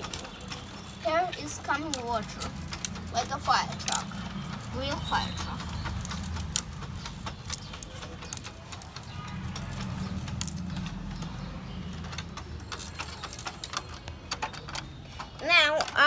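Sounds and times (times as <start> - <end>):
plastic toy clicks and taps: 0.0 - 16.0
steady low hum: 1.0 - 12.5.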